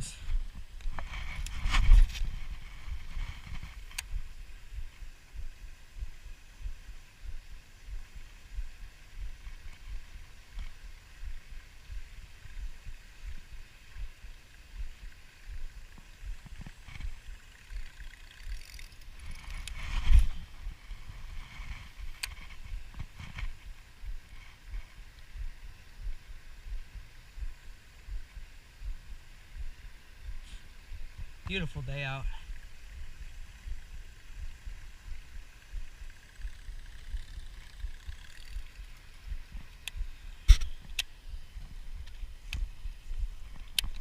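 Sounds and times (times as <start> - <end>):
wind buffeting the microphone: 0.0 - 10.2.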